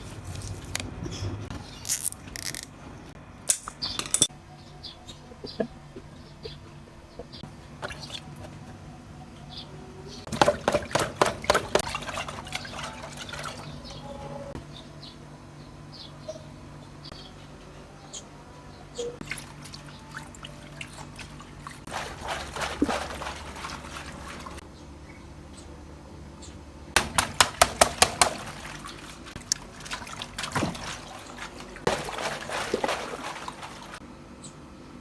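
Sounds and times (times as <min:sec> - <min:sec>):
water pouring and splashing: 0:10.3 - 0:14.1, 0:19.2 - 0:24.6, 0:27.0 - 0:34.0.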